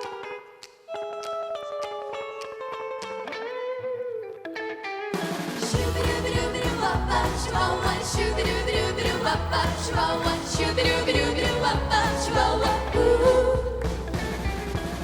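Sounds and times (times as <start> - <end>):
pop backing track: 5.2 - 15.0
vocal group singing: 5.6 - 14.5.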